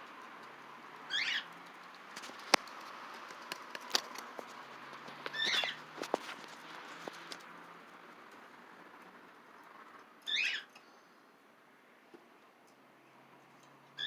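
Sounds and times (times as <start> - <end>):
parrot chirping: 1.1 - 1.5, 5.3 - 5.8, 10.2 - 10.7.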